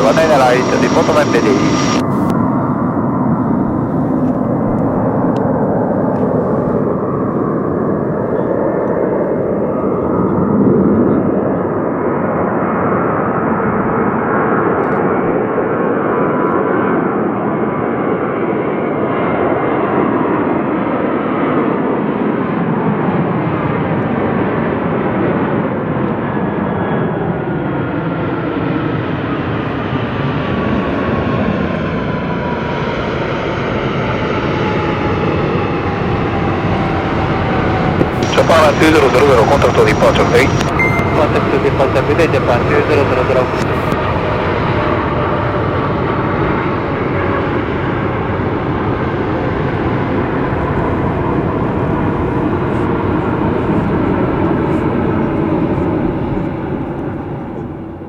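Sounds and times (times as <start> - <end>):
jet airliner engines climbing: 0.0 - 14.6, 27.1 - 58.0.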